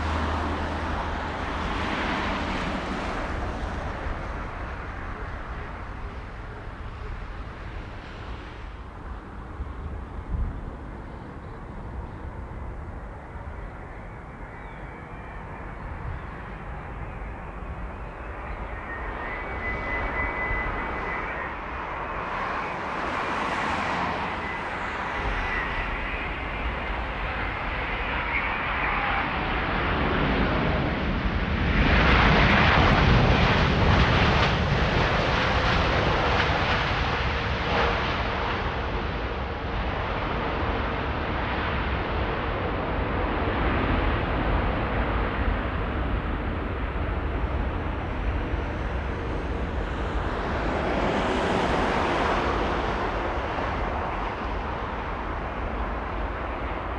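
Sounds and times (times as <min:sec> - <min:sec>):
faint steady whine: 0:00.0 - 0:31.4, 0:42.8 - 0:56.9
jet airliner engines passing: 0:00.0 - 0:56.9.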